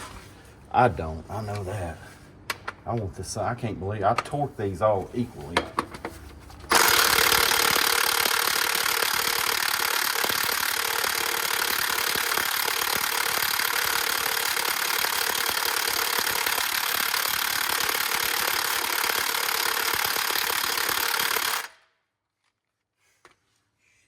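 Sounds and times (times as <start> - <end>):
impact wrench hammering: 5.6 - 21.7.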